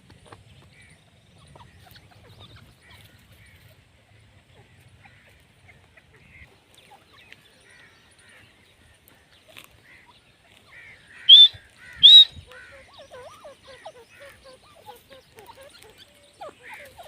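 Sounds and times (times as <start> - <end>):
low warbling bird calls: 0.6 - 17.0
faint bird chirps: 9.4 - 17.0
shrill rising bird calls: 11.1 - 15.0.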